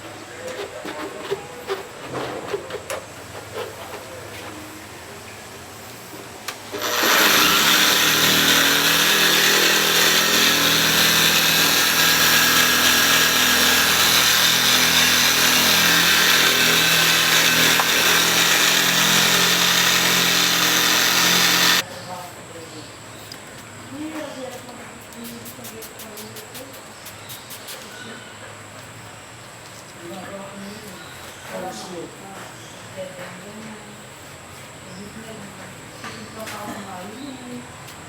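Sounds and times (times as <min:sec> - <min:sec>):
polisher running: 0:06.6 - 0:21.8.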